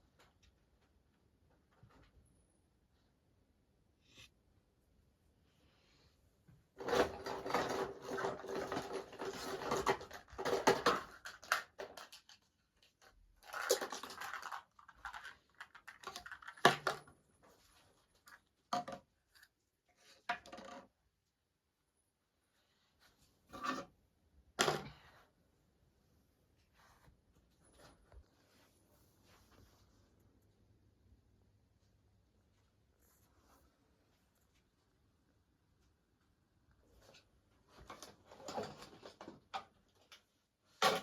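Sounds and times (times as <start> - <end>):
rustling and scraping: 6.7 - 18.9, 26.0 - 30.4, 32.4 - 35.0.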